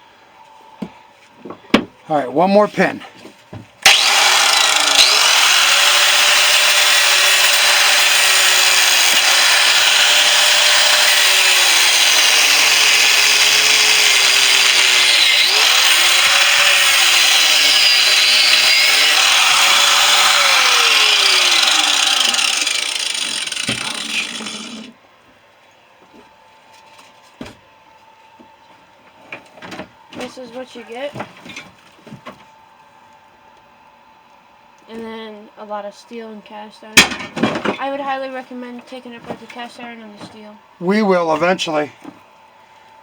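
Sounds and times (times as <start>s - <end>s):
angle grinder cutting metal: 3.8s - 24.9s.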